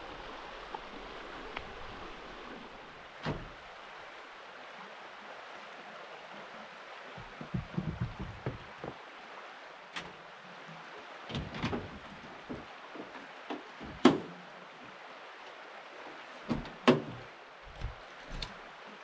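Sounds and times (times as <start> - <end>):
river rushing: 0.0 - 19.0
knocks and thuds of hard objects: 7.2 - 9.0, 11.3 - 14.3.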